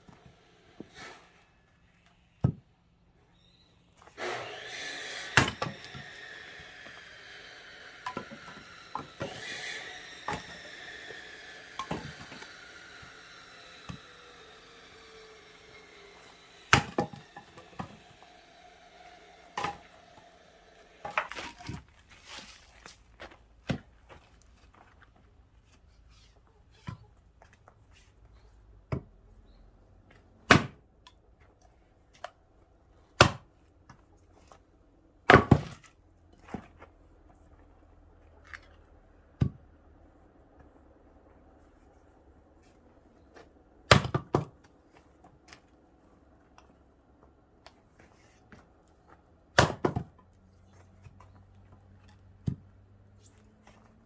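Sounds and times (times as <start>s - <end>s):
axe chopping firewood: 2.4s - 2.7s, 4.2s - 13.2s, 13.8s - 14.2s, 16.0s - 18.4s, 19.4s - 20.2s, 21.0s - 22.7s, 28.9s - 29.1s, 30.5s - 30.9s, 33.1s - 33.6s, 35.3s - 36.7s, 39.4s - 39.6s, 43.9s - 44.8s, 49.5s - 50.2s
firewood knocking: 16.7s - 18.0s.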